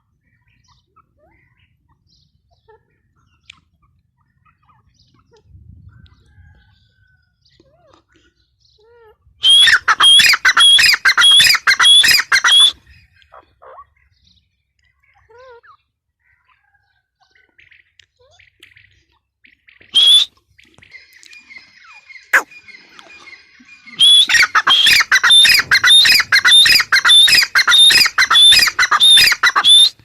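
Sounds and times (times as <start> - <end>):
francolin calling shrill phrases: 9.4 - 12.8, 20.0 - 20.3, 23.9 - 30.0.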